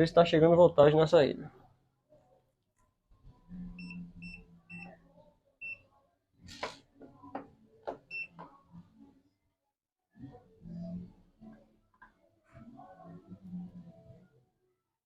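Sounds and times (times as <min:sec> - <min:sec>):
multimeter beeps: 0:03.8 - 0:05.0, 0:08.1 - 0:08.4.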